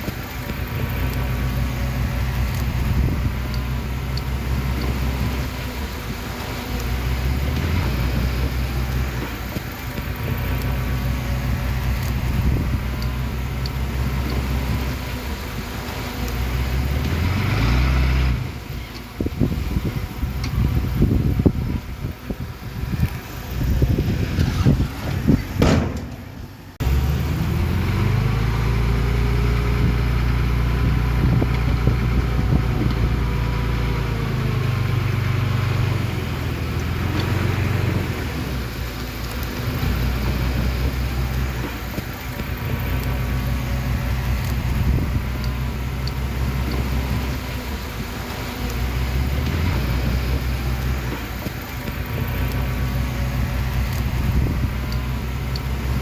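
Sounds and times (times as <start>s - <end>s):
heavy machinery diesel engine: 0.0s - 56.0s
noisy clatter: 20.4s - 27.2s.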